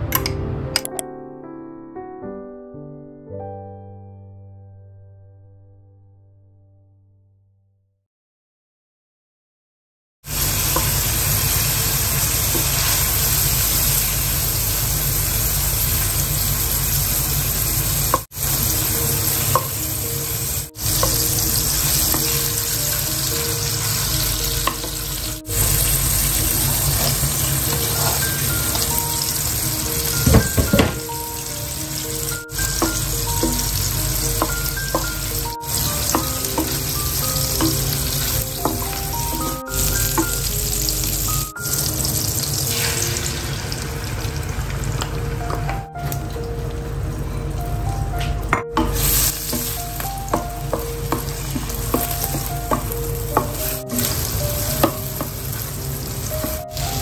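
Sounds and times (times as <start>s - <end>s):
soft melodic background music: 0.0s - 6.4s, 18.4s - 57.0s
shrimp sizzling in oil: 10.3s - 46.2s, 48.9s - 57.0s.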